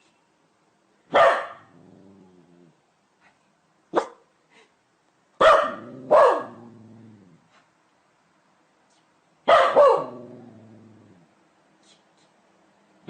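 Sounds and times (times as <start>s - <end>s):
dog barking: 1.1s - 1.7s, 3.9s - 4.3s, 5.4s - 6.6s, 9.5s - 10.2s.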